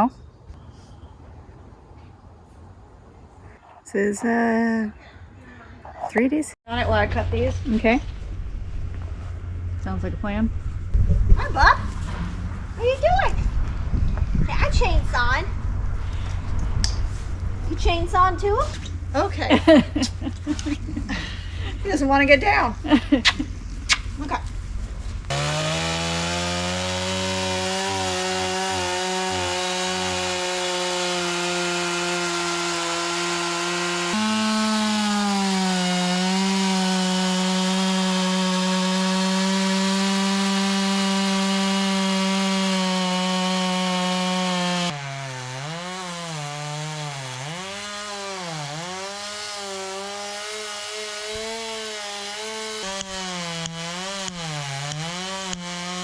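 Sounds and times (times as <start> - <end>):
chainsaw cutting at high speed: 19.0 - 24.2, 25.3 - 56.0.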